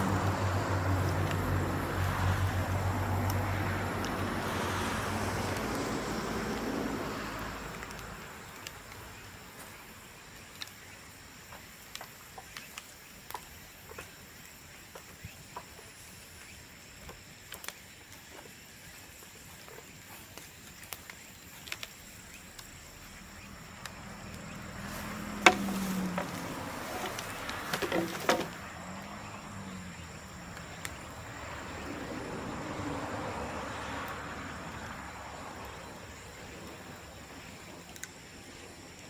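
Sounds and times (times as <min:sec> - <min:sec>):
engine-like noise with low hum: 0:00.0 - 0:10.2, 0:21.1 - 0:39.0.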